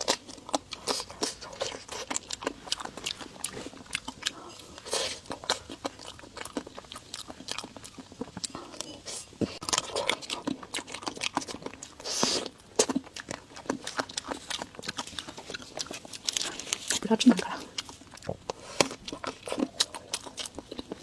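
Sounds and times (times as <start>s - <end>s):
chewing mouth clicks and smacks: 9.5s - 21.0s.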